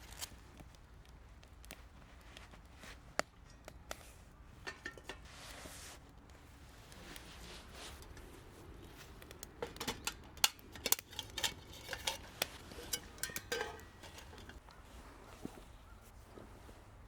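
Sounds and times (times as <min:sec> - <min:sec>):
metal cookware clinking: 0:04.6 - 0:05.3, 0:07.8 - 0:14.6.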